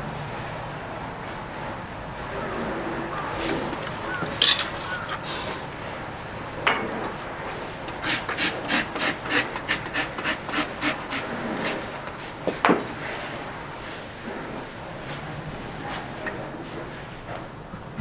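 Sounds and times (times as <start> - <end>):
rasp filing a hoof: 3.4 - 5.8, 6.8 - 12.3.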